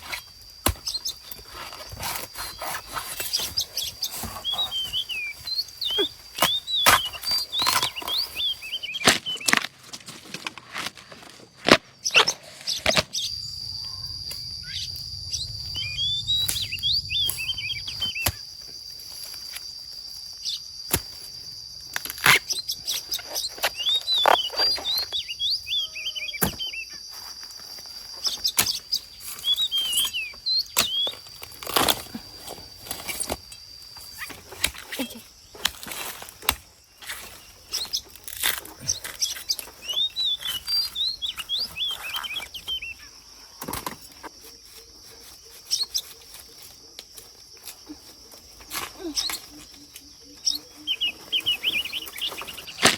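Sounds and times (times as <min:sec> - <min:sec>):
small birds chirping: 0:00.1 - 0:09.6, 0:12.0 - 0:19.3, 0:20.0 - 0:43.5, 0:44.2 - 0:52.9
high insect-like whine: 0:13.1 - 0:52.9.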